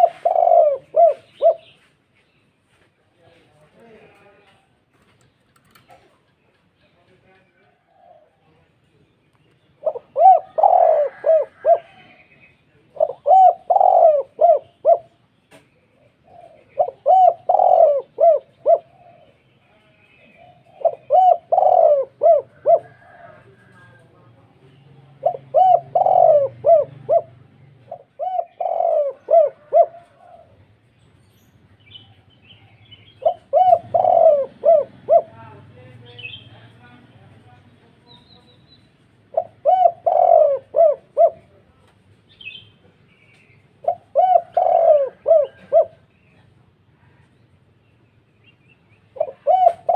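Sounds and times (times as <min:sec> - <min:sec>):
dove cooing: 0:00.0 - 0:01.9, 0:07.7 - 0:08.5, 0:09.8 - 0:15.2, 0:15.9 - 0:19.4, 0:20.2 - 0:30.8, 0:32.0 - 0:35.6, 0:39.2 - 0:41.7, 0:43.7 - 0:46.5, 0:49.1 - 0:49.9.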